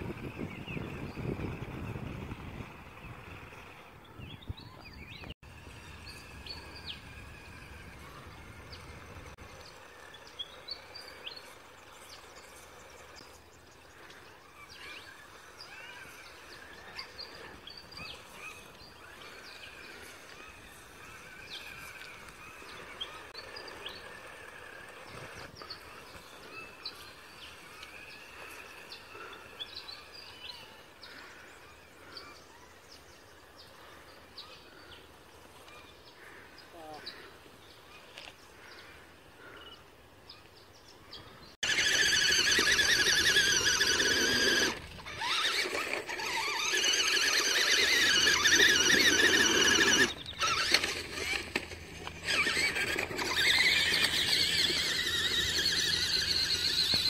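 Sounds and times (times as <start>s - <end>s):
wind rumbling on microphone: 0.0s - 9.6s
wild birds chirping: 0.0s - 57.0s.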